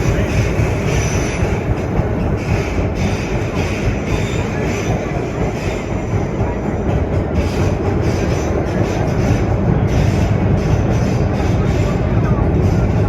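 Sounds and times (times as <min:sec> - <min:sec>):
subway train wheels rumbling: 0:00.0 - 0:13.0.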